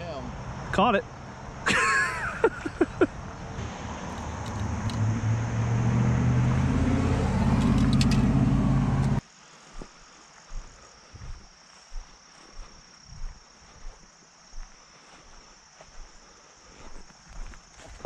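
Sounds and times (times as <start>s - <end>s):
car engine humming: 2.4s - 9.2s.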